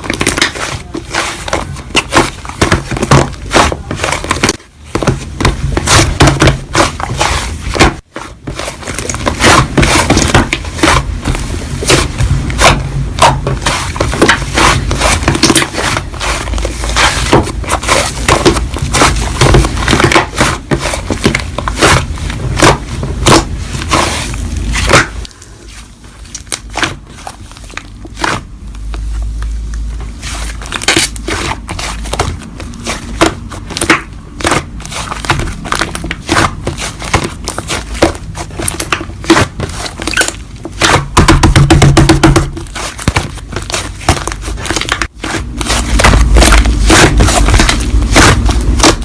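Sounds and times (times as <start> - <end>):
slime crackling and popping: 26.2 - 29.1, 30.2 - 49.0.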